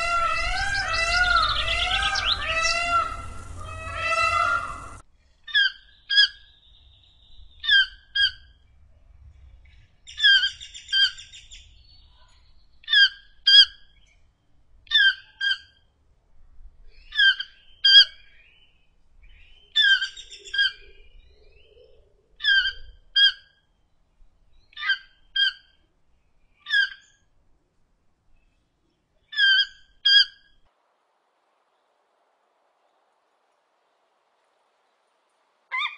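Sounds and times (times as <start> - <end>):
toucan calling: 0.0 - 6.7, 7.5 - 8.6, 10.1 - 11.6, 12.8 - 14.0, 14.9 - 15.9, 17.0 - 18.3, 19.4 - 21.2, 21.8 - 23.7, 24.6 - 25.9, 26.5 - 27.3, 29.2 - 30.6, 35.7 - 35.9.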